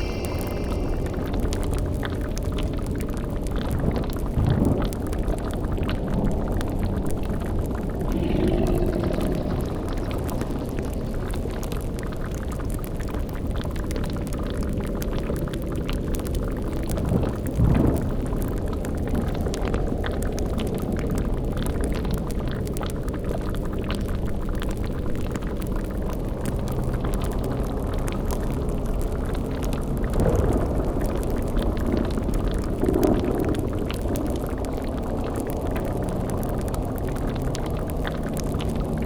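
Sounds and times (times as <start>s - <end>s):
low-pitched swell: 0.0s - 2.3s, 7.8s - 11.7s
low rumble: 0.0s - 12.6s
bubbling: 0.0s - 16.9s
fire crackle: 0.0s - 39.0s.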